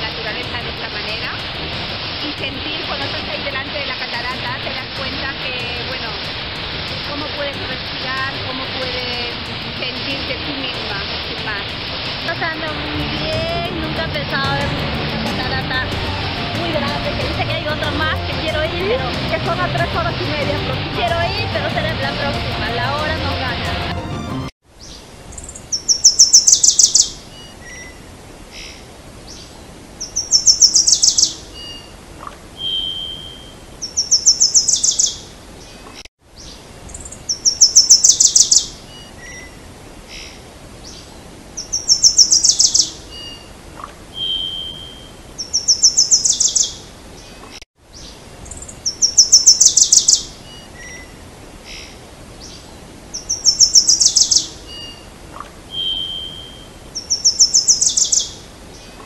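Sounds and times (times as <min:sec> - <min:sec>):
soft bird chirps: 0:24.8 - 0:59.0
songbird trilling: 0:24.8 - 0:59.0.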